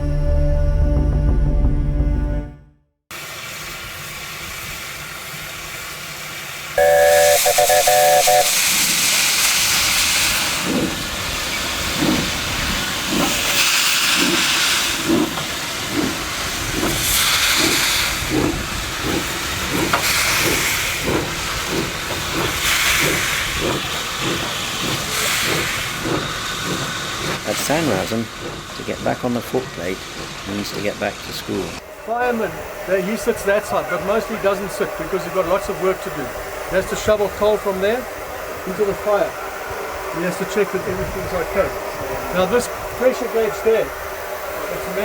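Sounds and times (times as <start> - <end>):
steam hissing: 3.1 - 45.0
locomotive whistle blast: 6.8 - 9.2
locomotive exhaust chuffing: 6.8 - 45.0.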